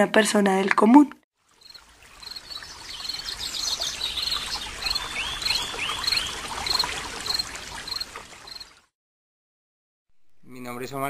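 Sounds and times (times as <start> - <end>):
birds singing and calling: 1.6 - 8.6.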